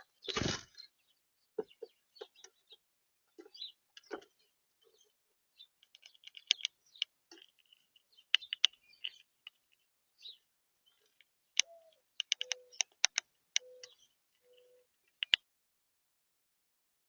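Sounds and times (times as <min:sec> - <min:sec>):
birds pecking at seed feeder: 0:01.6 - 0:15.4
faint bird chirps: 0:03.4 - 0:15.4.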